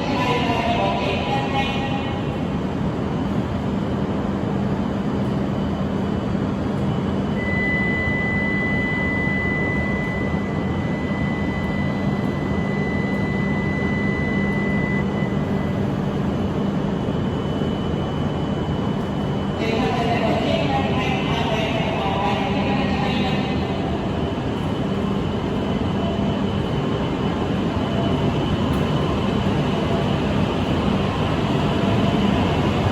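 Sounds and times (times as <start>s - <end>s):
high steady tone: 7.4s - 15.5s
bullet train rumble and hiss: 15.4s - 32.9s.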